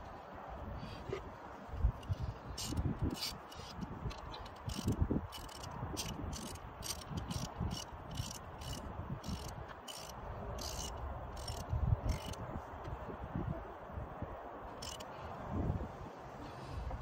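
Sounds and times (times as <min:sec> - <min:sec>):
ratchet wrench clicking: 0:02.0 - 0:12.4, 0:14.8 - 0:15.1.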